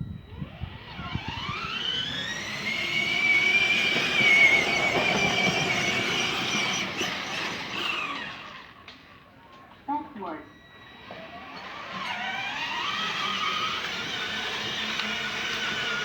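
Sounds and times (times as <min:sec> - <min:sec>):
toy electric motor whining: 0:00.3 - 0:08.9, 0:10.6 - 0:16.0.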